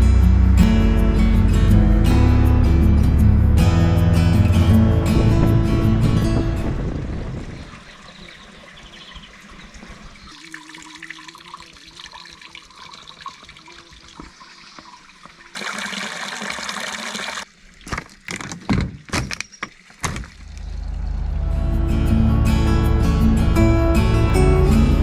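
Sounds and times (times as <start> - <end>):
water running and trickling: 5.1 - 21.5.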